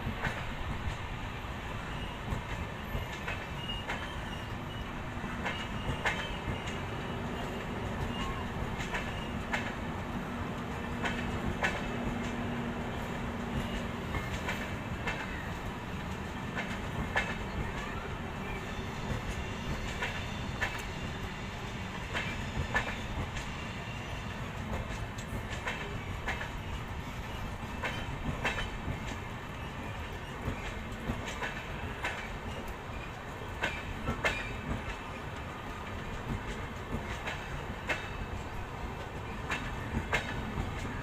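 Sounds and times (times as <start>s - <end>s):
train coaches rumbling past: 0.0s - 41.0s
wheels clattering over rail joints: 24.6s - 35.2s.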